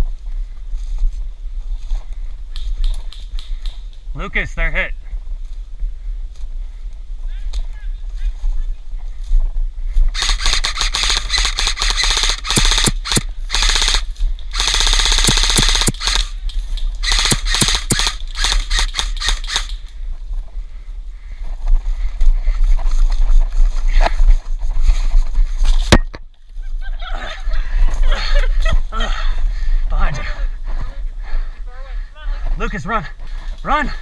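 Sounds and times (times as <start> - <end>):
airsoft guns firing: 10.2 - 16.4, 17.0 - 19.8.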